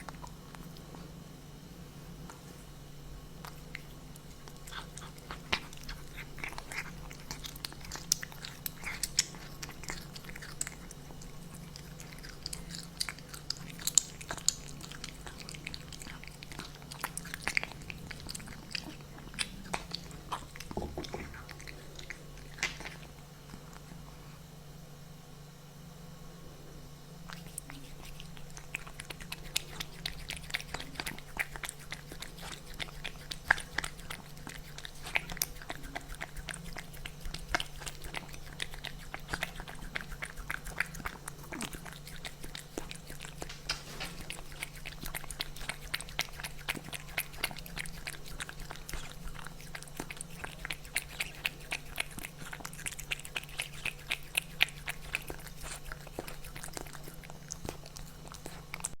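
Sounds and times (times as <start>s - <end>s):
kitten chewing food: 0.0s - 24.5s, 27.2s - 59.0s
steady low hum: 0.0s - 59.0s.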